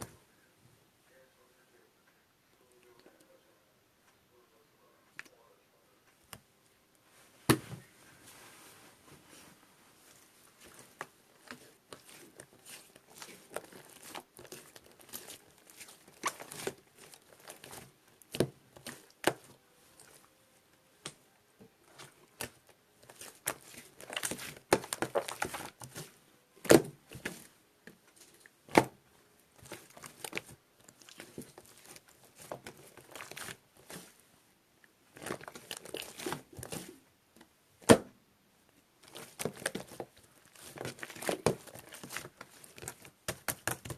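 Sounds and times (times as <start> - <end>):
slime crackling and crinkling: 9.3 - 20.3, 21.8 - 34.3, 35.0 - 37.0, 39.0 - 43.9.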